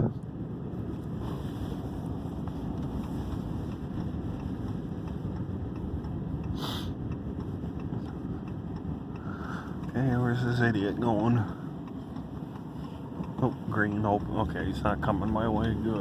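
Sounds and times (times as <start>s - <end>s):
car engine low rumble: 0.0s - 16.0s
brief hiss: 6.6s - 7.0s.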